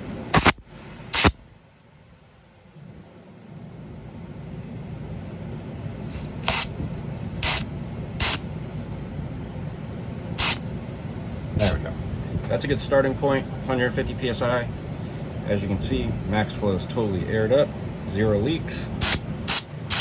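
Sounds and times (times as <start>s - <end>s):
compressed air hisses: 0.3s - 1.4s, 6.1s - 6.7s, 7.4s - 8.4s, 10.4s - 10.6s, 19.0s - 20.0s.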